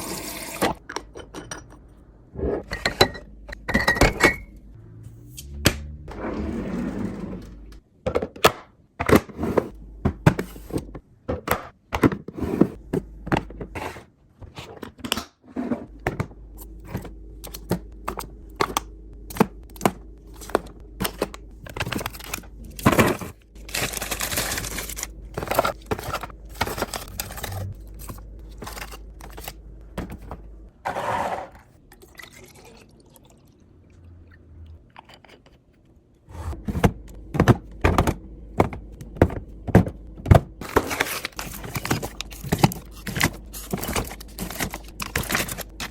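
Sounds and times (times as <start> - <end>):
containers clicking and thunking: 8.0 - 31.7, 36.6 - 45.9.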